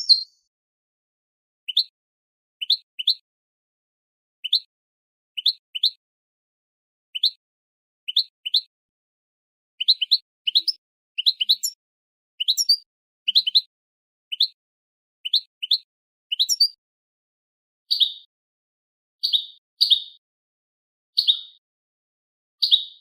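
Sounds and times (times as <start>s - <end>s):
bird giving short rising chirps: 0.0s - 0.4s.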